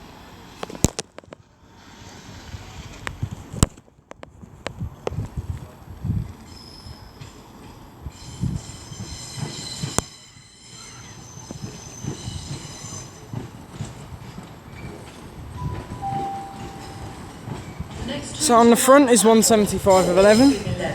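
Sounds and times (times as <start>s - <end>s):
train wheels rumbling and knocking: 0.1s - 20.9s
train brakes squealing: 6.4s - 18.4s.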